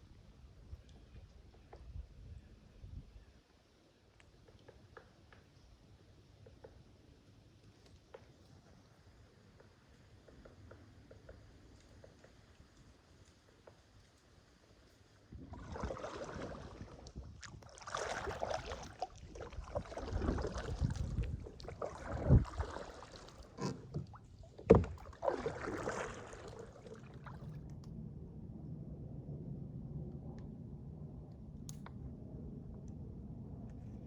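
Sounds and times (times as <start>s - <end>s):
paddle splashing through water: 15.3s - 27.6s.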